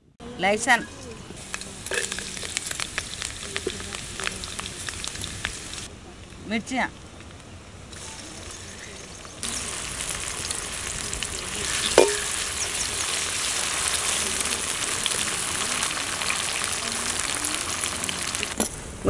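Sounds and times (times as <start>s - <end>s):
vegetables sizzling in hot oil: 0.8s - 5.9s, 7.9s - 18.6s
ladle clanking against pan: 11.8s - 12.9s.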